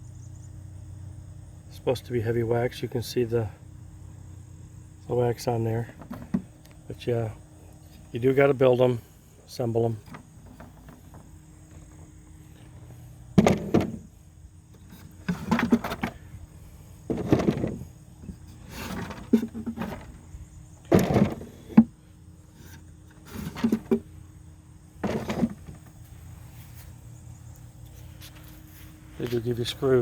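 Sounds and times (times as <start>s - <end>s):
faint steady hum: 0.0s - 30.0s
wood knocking and scraping: 10.0s - 14.1s, 14.8s - 16.2s, 17.1s - 20.2s, 20.8s - 21.9s, 22.6s - 24.1s, 25.0s - 26.0s.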